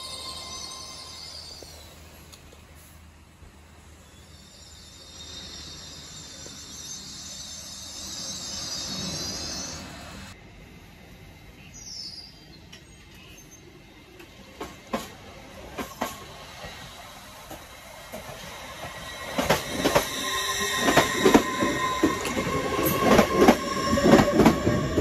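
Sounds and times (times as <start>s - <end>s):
train equipment hiss and hum: 0.0s - 25.0s
train moving off: 0.0s - 25.0s
wheels clacking on track: 14.2s - 25.0s.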